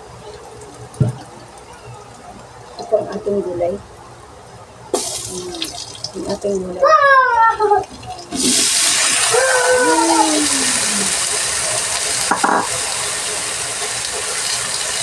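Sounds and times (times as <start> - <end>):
vegetables sizzling in a wok: 4.9 - 6.8, 7.6 - 15.0.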